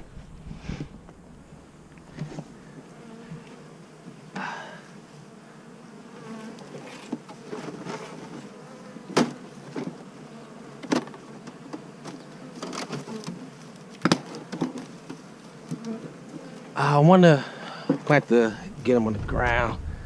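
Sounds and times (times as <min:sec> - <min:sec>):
bee swarm buzzing: 0:00.0 - 0:20.0.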